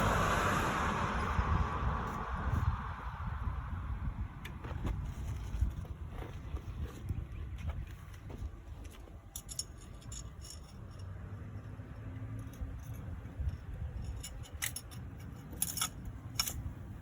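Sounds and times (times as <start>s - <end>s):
low steady rumble: 0.0s - 17.0s
light metallic clicks and clinks: 8.8s - 16.8s.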